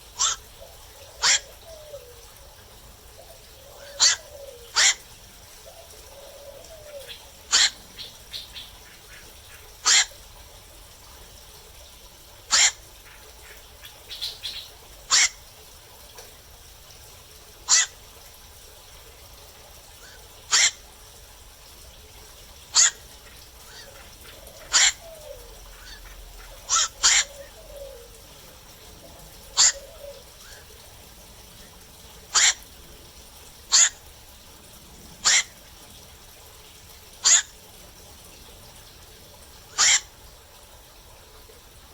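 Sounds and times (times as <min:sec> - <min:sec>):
heron harsh calls: 0:00.2 - 0:00.5, 0:01.2 - 0:01.9, 0:03.8 - 0:05.1, 0:06.6 - 0:07.8, 0:09.8 - 0:10.1, 0:12.5 - 0:12.8, 0:15.1 - 0:15.4, 0:17.7 - 0:18.0, 0:20.5 - 0:20.8, 0:22.8 - 0:23.1, 0:24.5 - 0:28.0, 0:29.5 - 0:30.2, 0:32.3 - 0:32.6, 0:33.7 - 0:34.0, 0:35.2 - 0:35.6, 0:37.2 - 0:37.5, 0:39.7 - 0:40.1.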